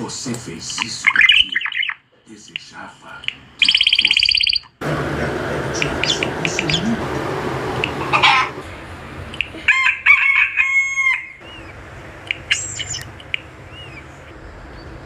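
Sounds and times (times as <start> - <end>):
bird crowing like a rooster: 8.1 - 8.6, 9.6 - 11.5.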